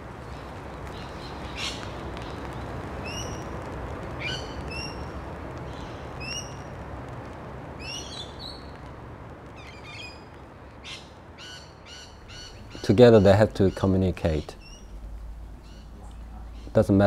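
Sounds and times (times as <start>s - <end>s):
birds chirping: 0.2s - 3.6s, 4.2s - 6.8s, 7.8s - 8.9s, 9.5s - 17.0s
chattering bird calls: 10.9s - 15.0s, 15.6s - 17.0s.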